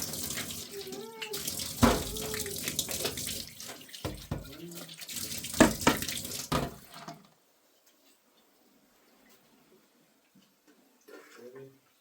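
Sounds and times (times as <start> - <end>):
water running and splashing: 0.0 - 7.2.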